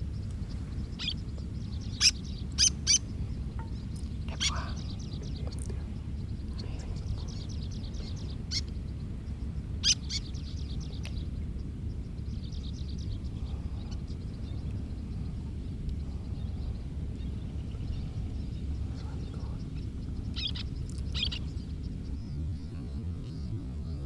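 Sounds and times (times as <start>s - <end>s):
low rumble: 0.0s - 24.0s
high thin bird calls: 0.9s - 5.2s, 18.8s - 22.5s.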